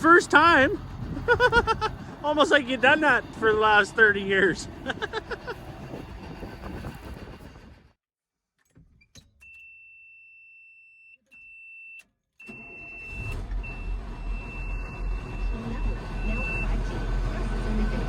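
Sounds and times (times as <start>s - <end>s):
diesel engine cranking and starting: 0.0s - 7.0s, 12.4s - 18.0s.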